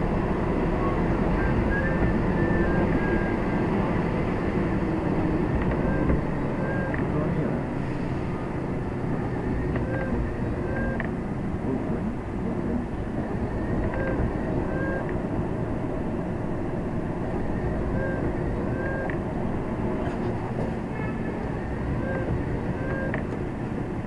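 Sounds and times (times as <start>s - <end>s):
lorry engine and road rumble: 0.0s - 24.0s
short high beeps: 5.8s - 6.9s, 10.7s - 11.0s, 14.0s - 15.1s, 17.9s - 19.1s, 22.0s - 23.2s.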